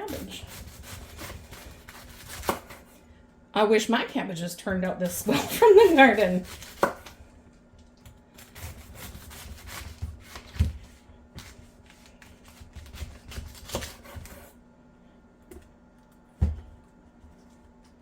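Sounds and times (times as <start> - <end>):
knife cutting cabbage: 0.0 - 3.0, 5.3 - 7.2, 8.4 - 14.5.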